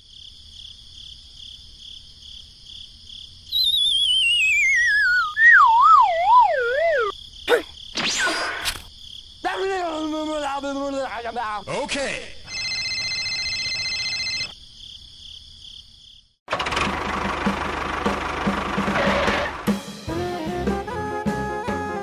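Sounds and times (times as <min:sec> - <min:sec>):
high insect-like chirring: 0:01.9 - 0:09.5
descending whistle tone: 0:03.5 - 0:07.1.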